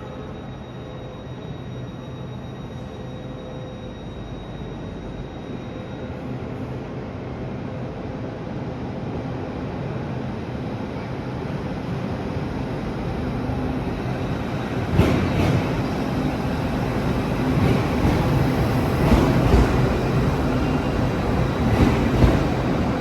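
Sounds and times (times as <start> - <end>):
train rumbling past: 10.4 - 23.0.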